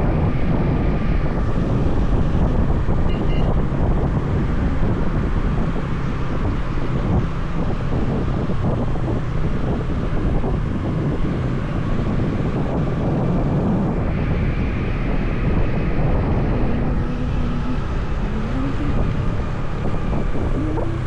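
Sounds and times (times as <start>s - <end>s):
wind rushing over microphone: 0.0s - 21.0s
motorbike engine running: 15.8s - 21.0s.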